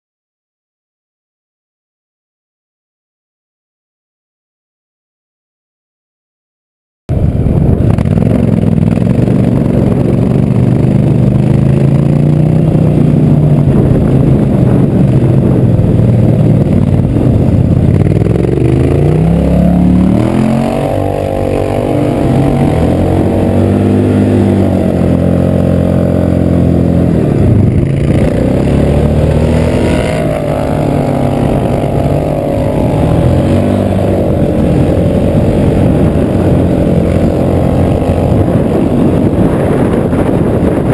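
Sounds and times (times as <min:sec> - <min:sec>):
go-kart engine revving: 0:07.1 - 0:40.9.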